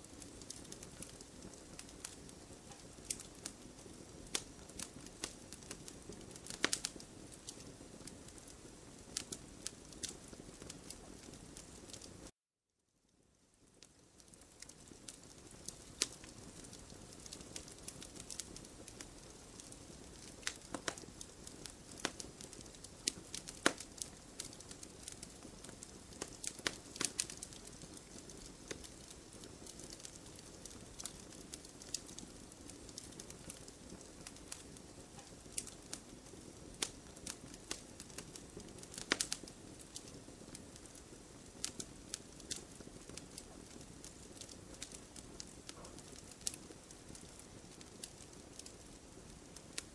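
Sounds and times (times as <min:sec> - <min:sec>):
wood fire crackling: 0:00.0 - 0:12.3, 0:13.4 - 0:49.9.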